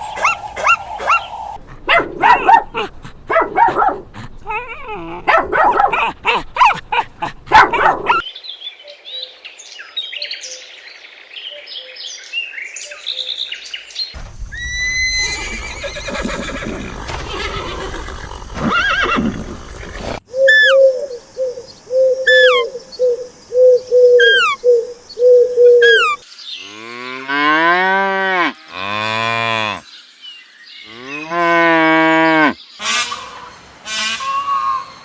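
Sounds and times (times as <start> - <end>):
cattle mooing: 15.4 - 20.2
short animal calls with chirps: 25.2 - 26.2.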